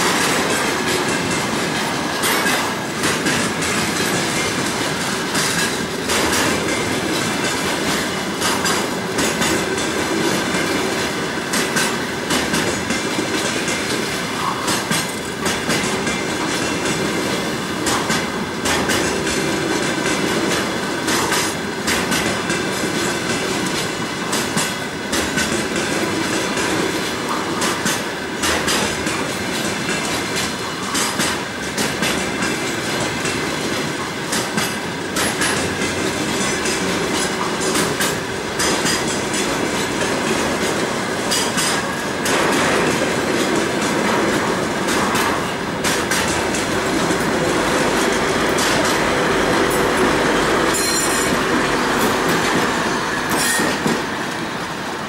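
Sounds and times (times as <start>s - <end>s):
steel wheels clicking over rail joints: 0.0s - 55.0s.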